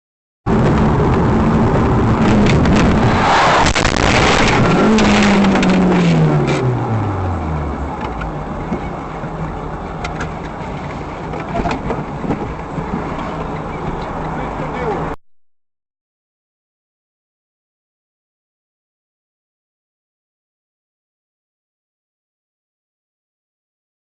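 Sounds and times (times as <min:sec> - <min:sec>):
vehicle rumble with knocks and rattles: 0:00.5 - 0:15.2.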